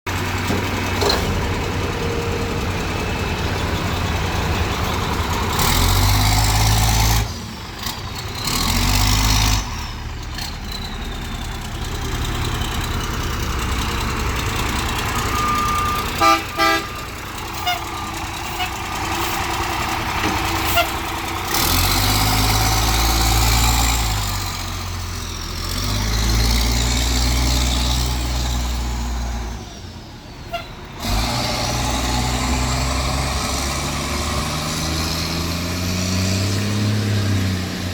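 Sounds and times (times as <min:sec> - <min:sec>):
diesel bus engine accelerating: 0:00.1 - 0:37.9
short beeps: 0:15.2 - 0:16.8.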